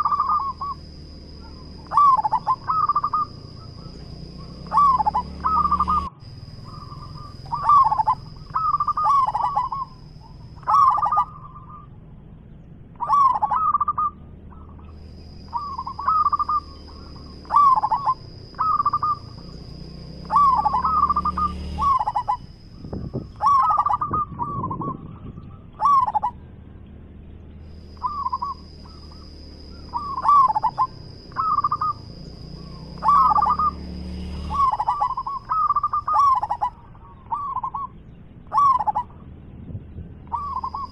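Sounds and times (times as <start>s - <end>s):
dove cooing: 0.0s - 12.3s, 12.9s - 26.6s, 27.7s - 39.3s, 40.1s - 40.9s.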